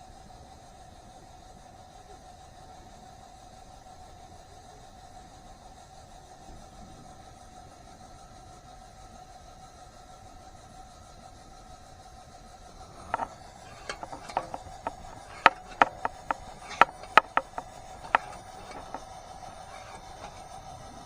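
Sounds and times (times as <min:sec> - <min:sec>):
sharp irregular knocks: 0:12.9 - 0:20.4.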